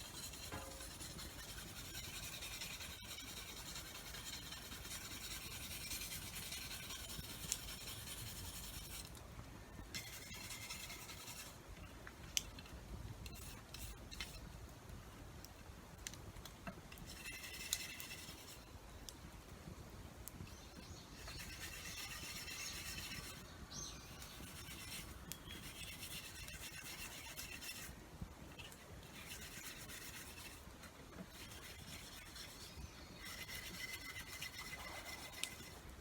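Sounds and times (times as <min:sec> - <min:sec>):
tool rubbing and scraping: 0:00.0 - 0:09.1, 0:10.0 - 0:11.6, 0:17.0 - 0:18.7, 0:21.2 - 0:23.5, 0:24.2 - 0:27.9, 0:28.5 - 0:35.9.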